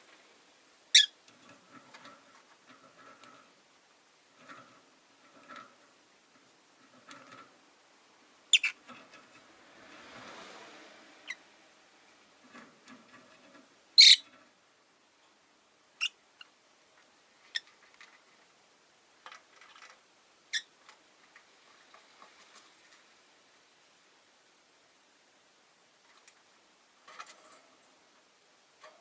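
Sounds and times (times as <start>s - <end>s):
lovebirds chirping: 0.9s - 1.2s, 8.5s - 8.8s, 14.0s - 14.2s.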